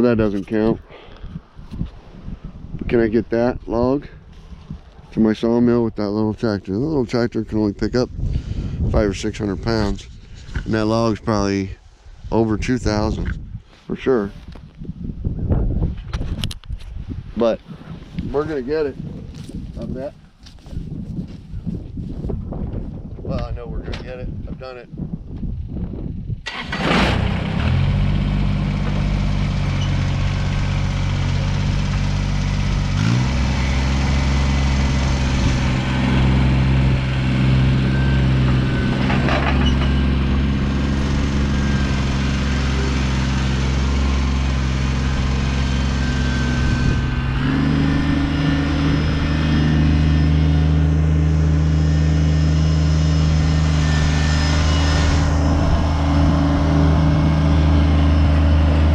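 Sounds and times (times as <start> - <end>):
tractor diesel engine running: 26.5 - 58.9.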